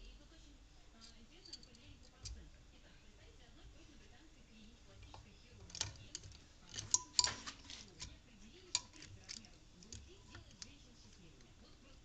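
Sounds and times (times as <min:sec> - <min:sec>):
metal parts clicking: 0:05.1 - 0:11.2.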